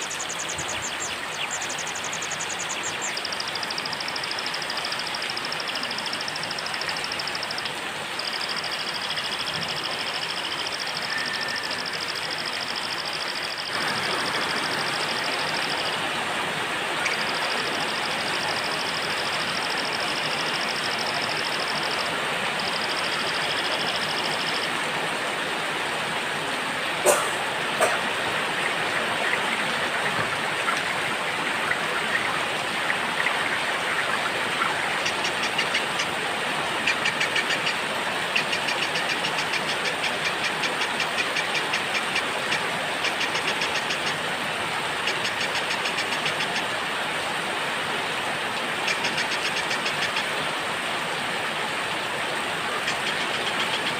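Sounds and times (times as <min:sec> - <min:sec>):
small birds singing: 0:00.0 - 0:06.4
steady rain: 0:00.0 - 0:53.9.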